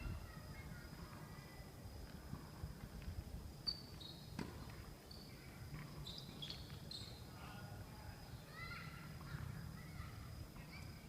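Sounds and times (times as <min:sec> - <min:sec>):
high-pitched insect trill: 0:03.5 - 0:04.3, 0:05.0 - 0:11.0.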